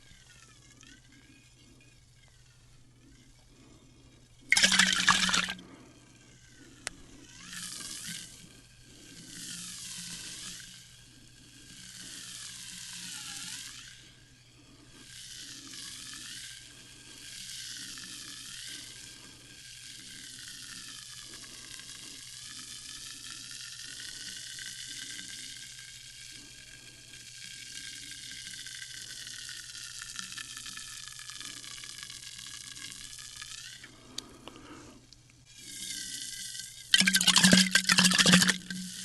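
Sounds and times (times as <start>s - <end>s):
faint low hum: 0.0s - 17.3s
sparkling water fizzing: 4.5s - 5.6s, 37.0s - 38.7s.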